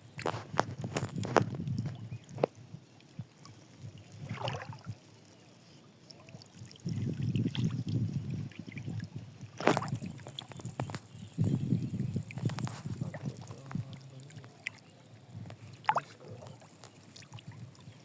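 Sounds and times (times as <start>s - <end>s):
fish splashing in a net: 4.2s - 4.9s, 9.6s - 11.2s.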